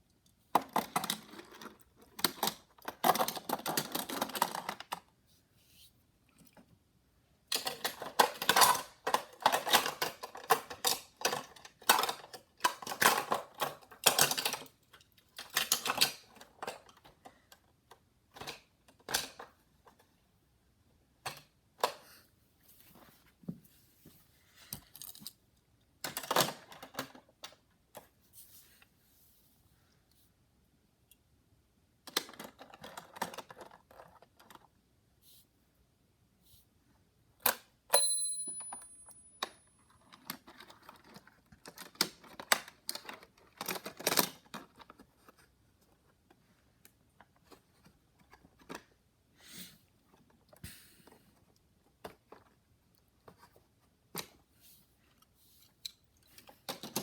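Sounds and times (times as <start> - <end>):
toy cars clicking and rattling: 0.6 - 5.1, 7.5 - 20.0, 32.1 - 34.8, 40.0 - 45.3.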